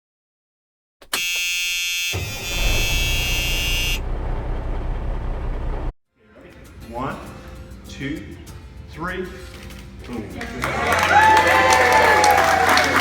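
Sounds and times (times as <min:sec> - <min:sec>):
harsh buzzing tone: 0:01.0 - 0:05.9
low rumble: 0:02.2 - 0:06.0.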